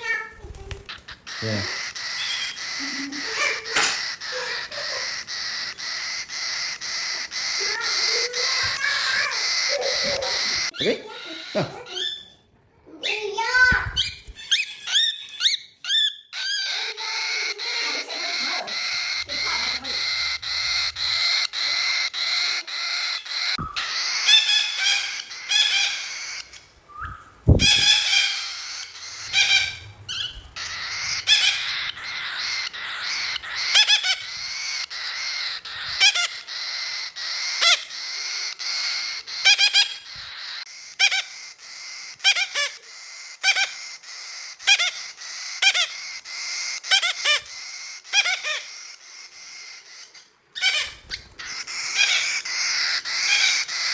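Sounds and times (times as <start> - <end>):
cockatiel chirping: 0.0 - 12.4, 13.0 - 53.9.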